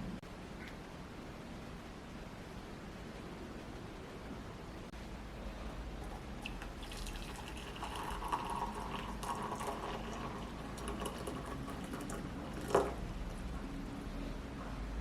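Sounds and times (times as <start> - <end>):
water running: 5.6 - 13.8.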